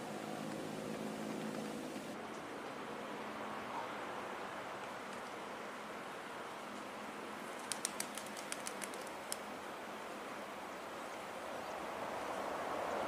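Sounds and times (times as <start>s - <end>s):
sharp high ticks: 7.6s - 9.4s.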